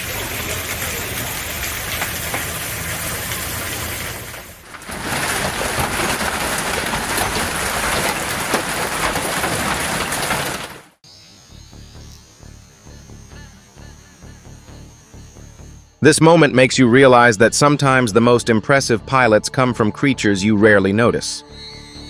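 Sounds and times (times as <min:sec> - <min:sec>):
hail pelting down: 0:00.0 - 0:11.0.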